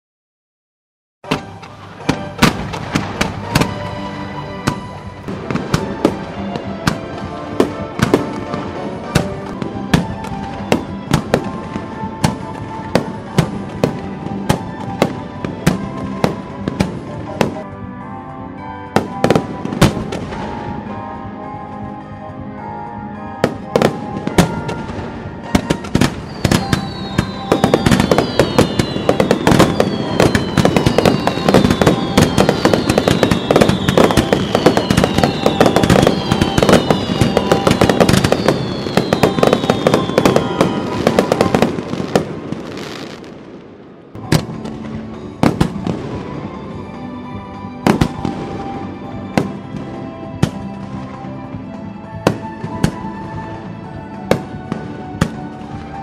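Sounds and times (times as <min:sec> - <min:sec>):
background music: 0:01.2 - 0:56.0
fireworks bangs and crackles: 0:01.3 - 0:18.0, 0:18.6 - 0:56.0
firework falling whistles: 0:25.6 - 0:43.3.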